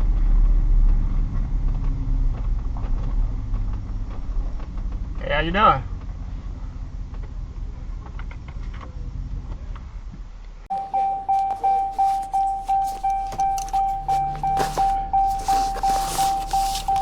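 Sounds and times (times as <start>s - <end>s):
electronic car warning chime: 10.7s - 15.4s.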